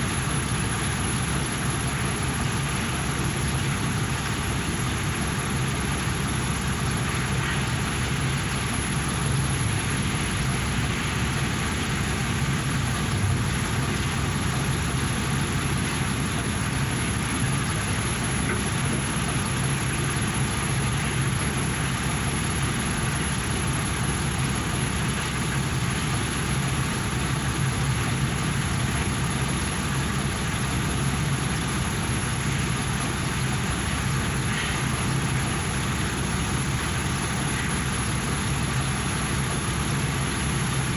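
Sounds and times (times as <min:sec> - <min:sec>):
engine idling: 0:00.0 - 0:40.9.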